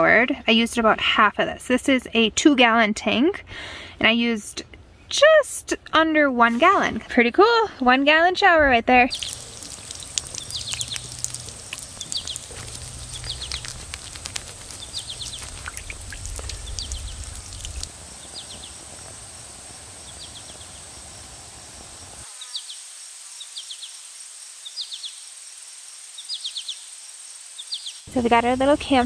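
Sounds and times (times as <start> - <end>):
bird chirping: 9.0 - 19.1, 20.0 - 21.0
low rumble: 10.2 - 18.0.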